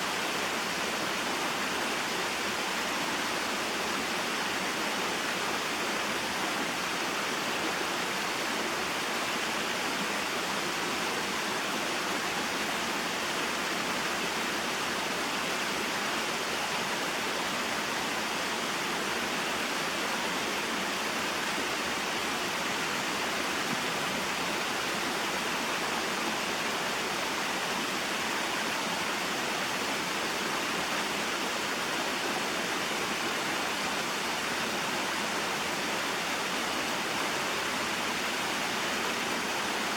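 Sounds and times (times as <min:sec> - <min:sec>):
waterfall and stream rushing: 0:00.0 - 0:39.9.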